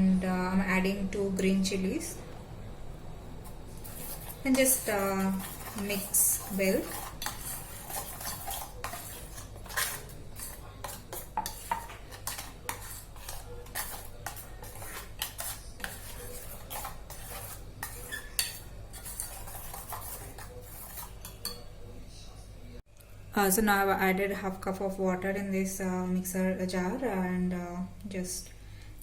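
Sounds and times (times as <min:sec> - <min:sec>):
spoon scraping metal container: 0:03.4 - 0:21.6.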